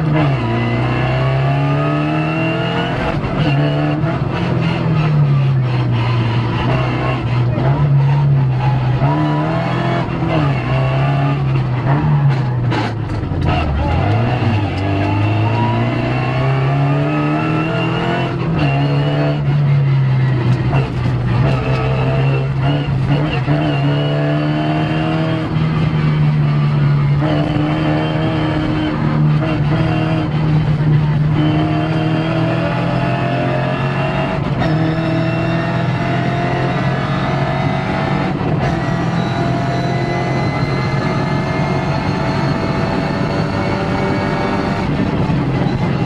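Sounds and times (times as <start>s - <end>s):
rally car engine revving: 0.0s - 46.0s.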